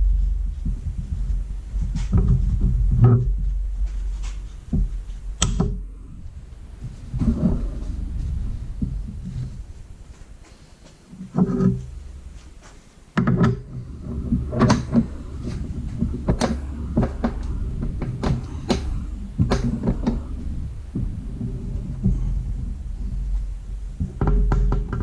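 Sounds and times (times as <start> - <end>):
low steady hum: 0.0 - 25.0
metal clicks and knocks: 4.2 - 5.8, 13.2 - 23.4, 24.0 - 25.0.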